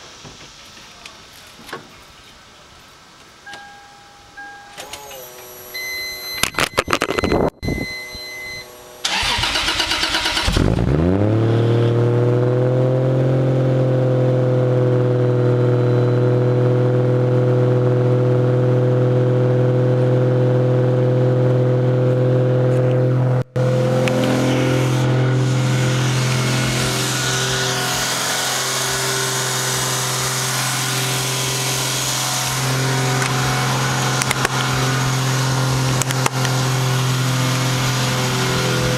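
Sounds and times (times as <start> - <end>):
short electronic tones: 4.4 - 9.0
car engine starting and idling: 4.4 - 38.9.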